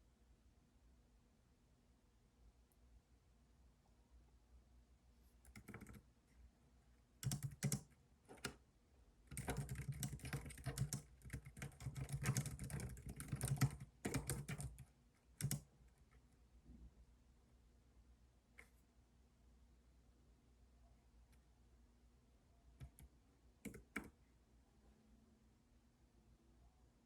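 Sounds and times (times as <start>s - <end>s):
computer keyboard typing: 5.5s - 6.0s, 7.2s - 8.6s, 9.3s - 15.7s, 22.8s - 24.2s.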